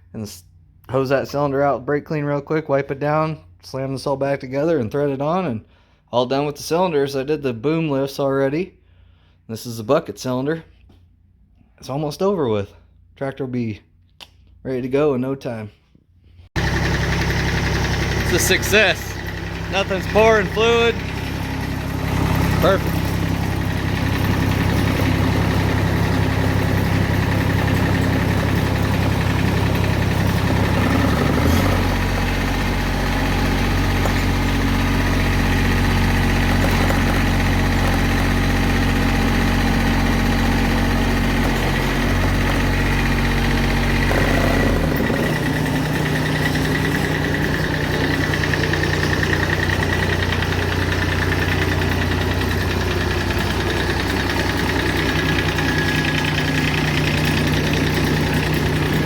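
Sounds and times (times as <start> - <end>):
tractor diesel engine running: 16.6 - 59.0.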